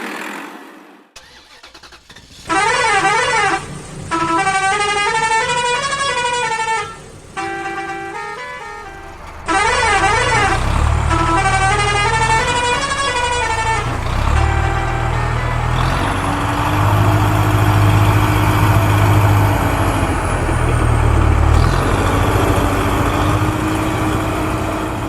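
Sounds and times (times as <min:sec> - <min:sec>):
low engine rumble: 0:01.9 - 0:25.0.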